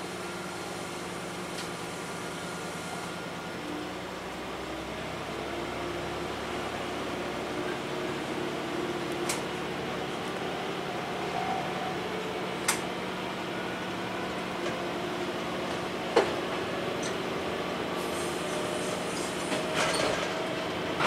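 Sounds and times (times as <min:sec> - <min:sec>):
railcar engine hum: 0:00.0 - 0:21.0
wheels clacking on track: 0:06.6 - 0:13.0, 0:13.7 - 0:21.0.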